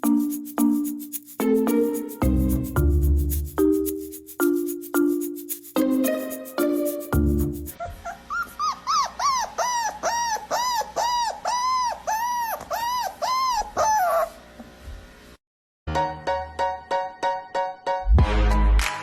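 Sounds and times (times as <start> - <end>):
background music: 0.0 - 7.8, 15.9 - 19.0
dog whining: 7.8 - 14.4.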